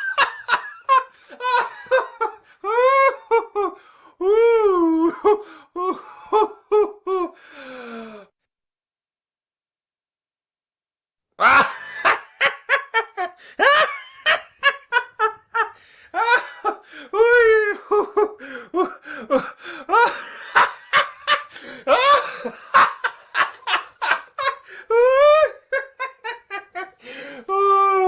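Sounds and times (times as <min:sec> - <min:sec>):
man laughing mockingly: 0:00.0 - 0:03.7, 0:11.4 - 0:27.0.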